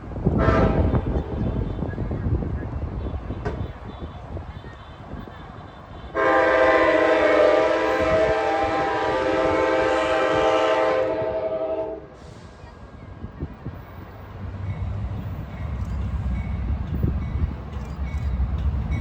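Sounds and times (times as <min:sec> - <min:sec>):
train horn blast: 0:00.3 - 0:01.9, 0:03.3 - 0:12.4.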